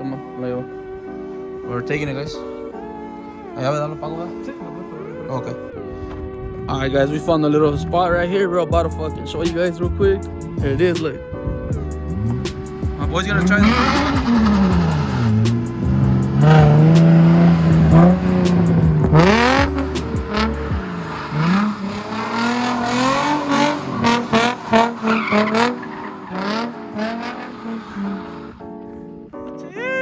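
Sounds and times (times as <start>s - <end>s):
car engine revving: 10.2s - 28.7s
tyres squealing: 12.1s - 28.6s.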